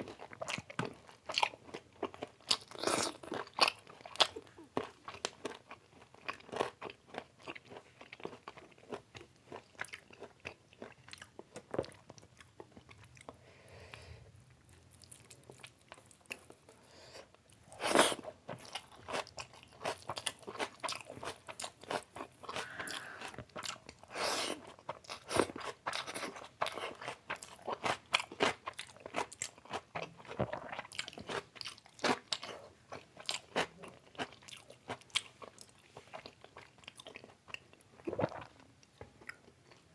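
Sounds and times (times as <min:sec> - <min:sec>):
wet chewing: 0:17.9 - 0:39.8.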